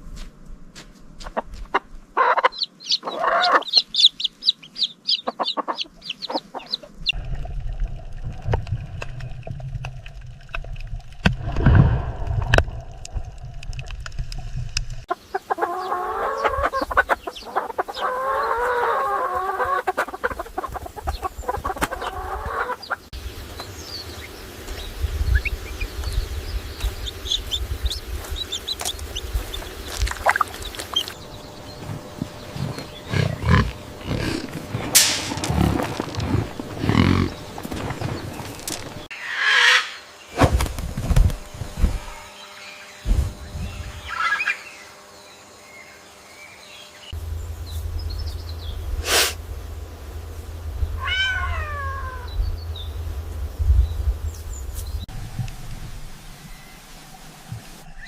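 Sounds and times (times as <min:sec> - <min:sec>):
chickens clucking and calling: 0:01.2 - 0:07.2, 0:15.1 - 0:23.1, 0:26.8 - 0:40.0.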